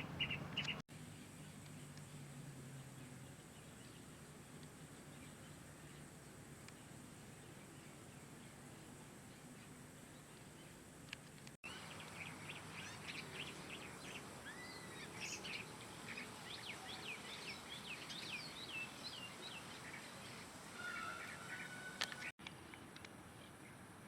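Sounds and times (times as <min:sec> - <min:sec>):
small birds chirping: 0:00.0 - 0:23.8
faint outdoor background: 0:00.0 - 0:24.0.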